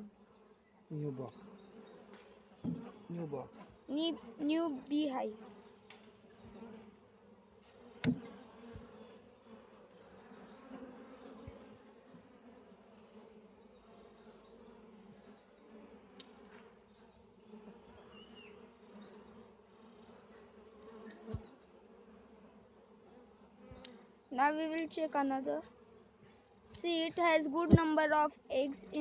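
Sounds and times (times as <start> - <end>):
honeybees buzzing: 0.0 - 29.0
sharp knock: 8.0 - 8.3.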